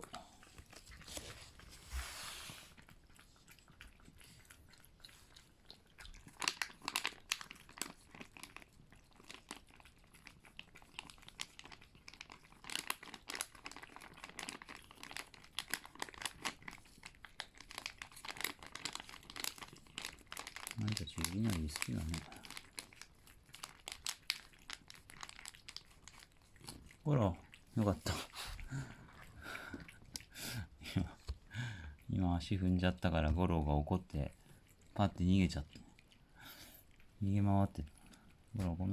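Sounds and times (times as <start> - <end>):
cats eating crunchy food: 0.0 - 38.9
soft rustle: 0.3 - 3.0.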